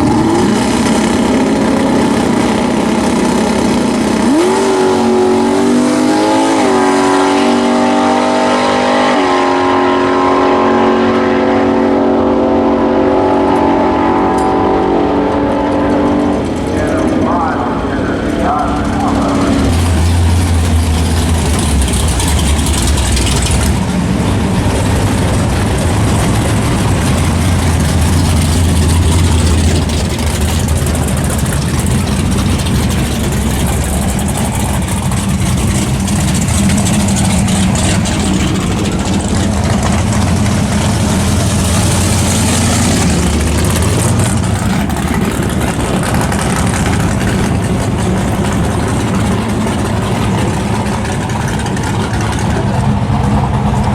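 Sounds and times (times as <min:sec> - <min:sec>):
car engine humming: 0:00.0 - 0:53.9
steady rush of noise: 0:13.7 - 0:53.9.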